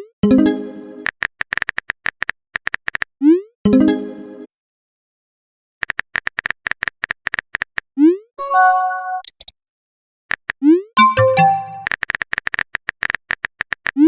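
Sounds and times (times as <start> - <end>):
incoming message chime: 8.4 - 9.2, 11.0 - 11.9
keyboard typing clicks: 10.4 - 14.0.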